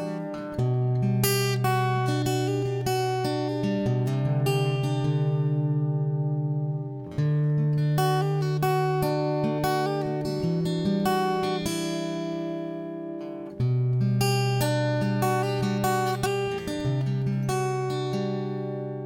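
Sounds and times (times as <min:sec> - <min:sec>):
acoustic guitar picking: 0:00.0 - 0:19.0.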